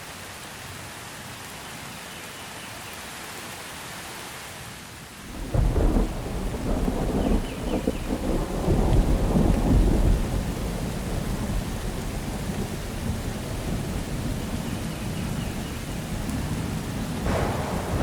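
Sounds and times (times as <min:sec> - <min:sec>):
steady rain: 0:00.0 - 0:18.0
low rumble of thunder: 0:05.3 - 0:18.0.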